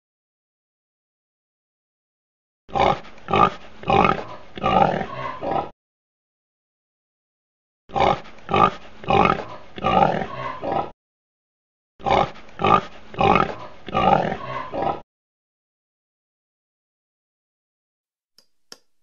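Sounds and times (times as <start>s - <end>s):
pigs grunting: 2.7s - 5.7s, 7.9s - 11.0s, 12.0s - 15.0s.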